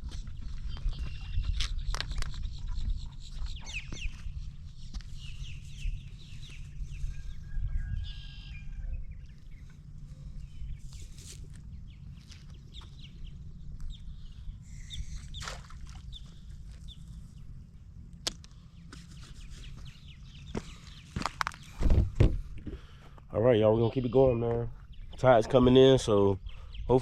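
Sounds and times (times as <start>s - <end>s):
birds chirping: 0.0s - 27.0s
wind on microphone: 5.7s - 9.2s, 21.7s - 22.6s.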